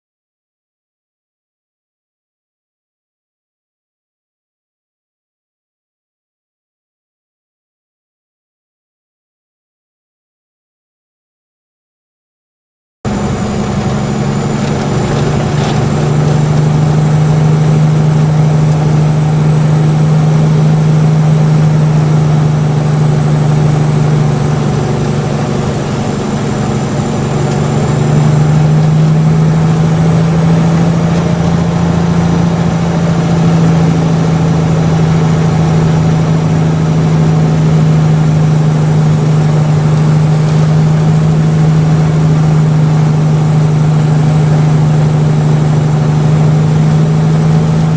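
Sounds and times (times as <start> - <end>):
truck diesel engine running: 13.1 - 47.9.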